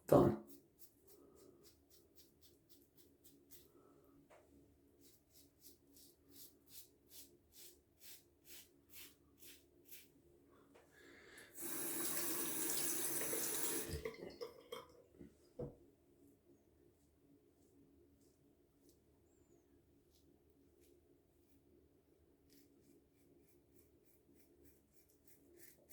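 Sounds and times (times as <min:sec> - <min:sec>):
tap water running: 0:11.4 - 0:15.3.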